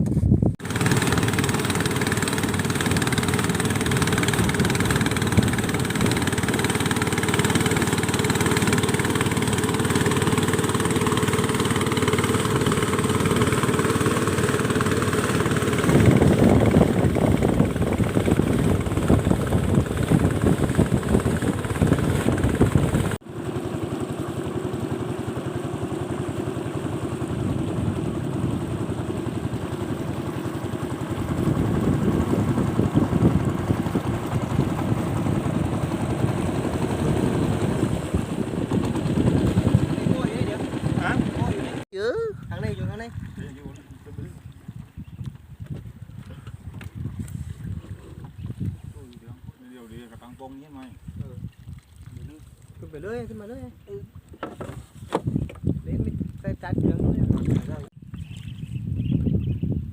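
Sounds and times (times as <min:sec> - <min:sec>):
small engine running: 0:00.6 - 0:41.9.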